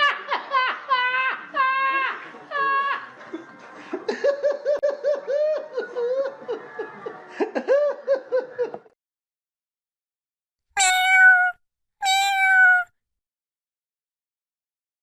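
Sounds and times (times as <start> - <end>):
high-pitched laughter: 10.8 - 12.8.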